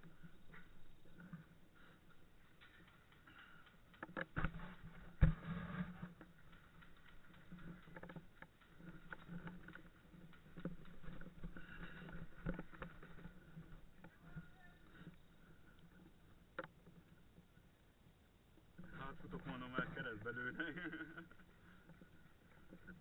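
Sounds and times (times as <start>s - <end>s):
gear knocking and rustling: 0.0s - 17.2s.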